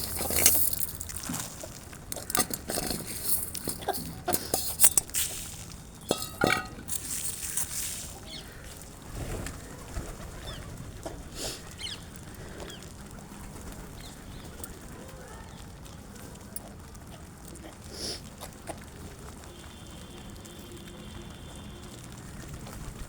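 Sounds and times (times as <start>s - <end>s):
rustling: 0.0s - 10.2s
small birds chirping: 0.0s - 16.1s.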